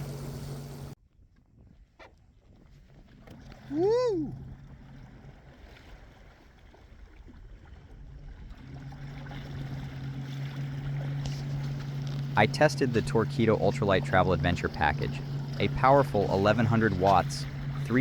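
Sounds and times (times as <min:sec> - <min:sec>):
water noise: 0:00.0 - 0:18.0
man whooping: 0:03.6 - 0:04.5.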